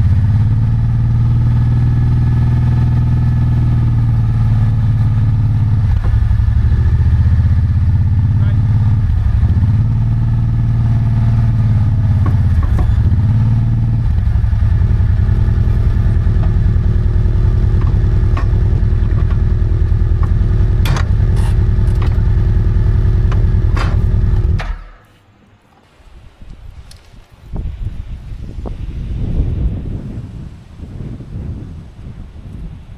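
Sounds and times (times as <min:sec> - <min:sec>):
engine running with pulsing beat: 0:00.0 - 0:25.0
sharp clanks and knocks: 0:12.1 - 0:13.4, 0:14.8 - 0:22.5, 0:23.1 - 0:25.9.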